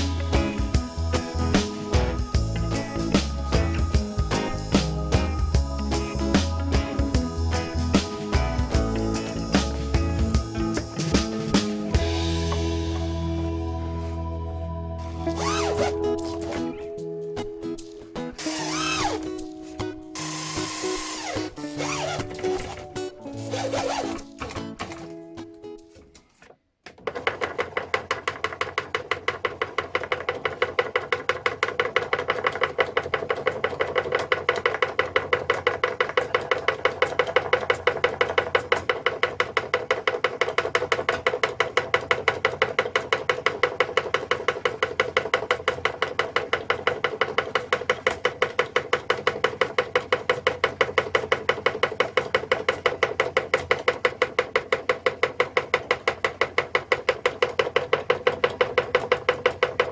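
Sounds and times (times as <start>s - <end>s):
motor-driven machine clicking: 18.4s - 19.5s, 20.2s - 25.0s.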